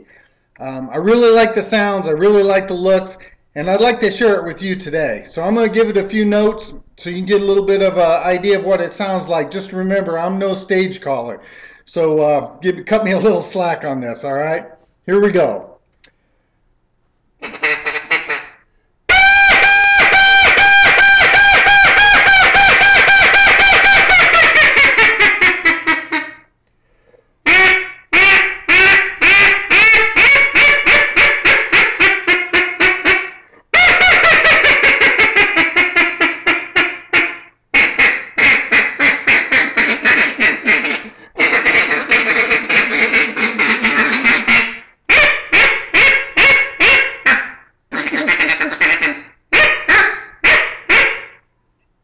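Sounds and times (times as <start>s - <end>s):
duck call quacking: 17.4s - 26.4s, 27.4s - 51.4s.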